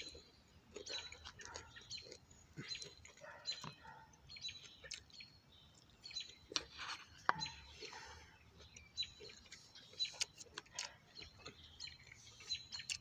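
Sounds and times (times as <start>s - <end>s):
faint bird chirps: 0.0s - 13.0s
wet chewing and mouth smacks: 0.0s - 13.0s.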